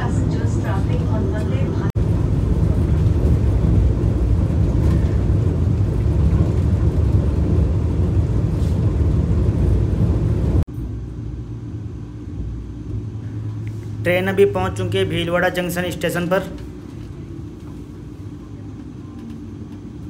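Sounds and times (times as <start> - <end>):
train rumbling along track: 0.0 - 11.6.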